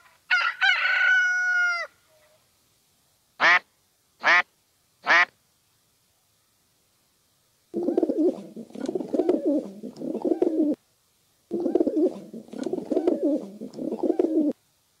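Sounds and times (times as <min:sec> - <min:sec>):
pigeon cooing: 0:07.8 - 0:10.8, 0:11.5 - 0:14.6.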